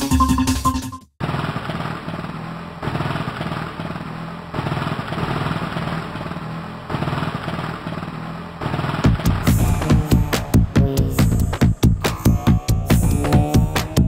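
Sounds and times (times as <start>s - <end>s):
motocross bike engines revving: 1.2s - 14.0s
music with heavy drum hits: 9.0s - 14.0s.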